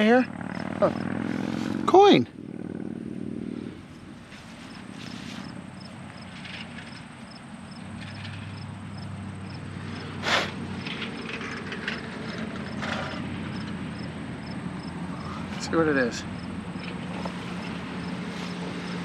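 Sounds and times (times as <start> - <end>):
digging scrapes in soil: 1.2 - 1.8, 4.3 - 5.6, 10.2 - 11.6.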